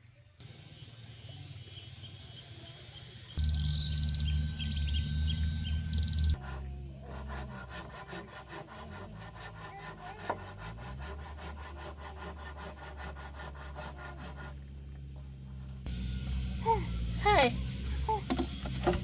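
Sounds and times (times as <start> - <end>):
rapid rasping strokes: 3.4 - 15.0.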